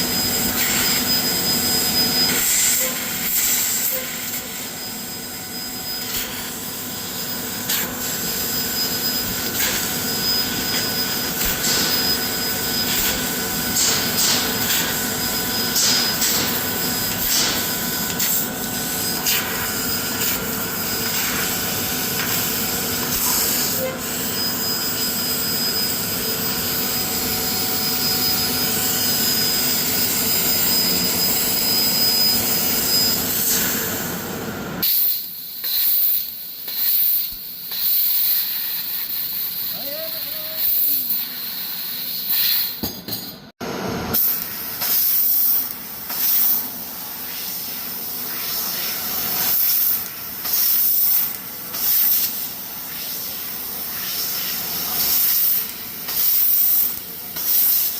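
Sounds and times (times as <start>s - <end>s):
laser cutter hiss: 0.0s - 34.2s, 34.8s - 42.9s, 44.1s - 57.9s.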